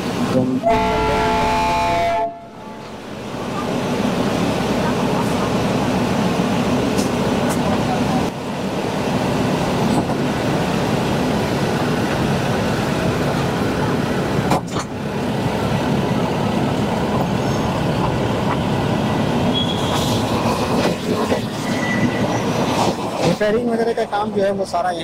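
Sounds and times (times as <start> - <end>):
train rumbling: 0.0 - 25.0
high squeal: 19.5 - 20.2, 21.6 - 22.6.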